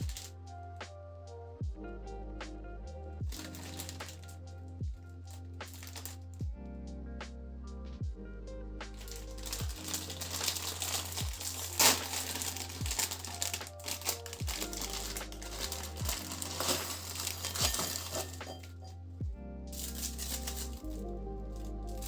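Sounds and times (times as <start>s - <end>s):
crinkling and rustling: 0.0s - 0.3s, 3.3s - 4.4s, 5.3s - 6.3s, 8.9s - 19.0s, 19.8s - 22.0s
background music with low beat: 0.0s - 22.0s.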